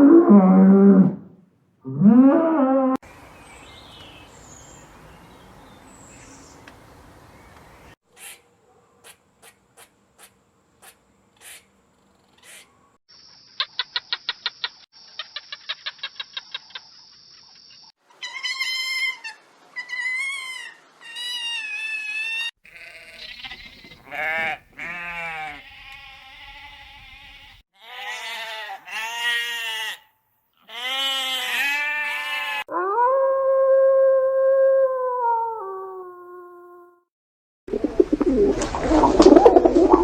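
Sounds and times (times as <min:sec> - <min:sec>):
goat or sheep bleating: 0:21.6 - 0:32.7.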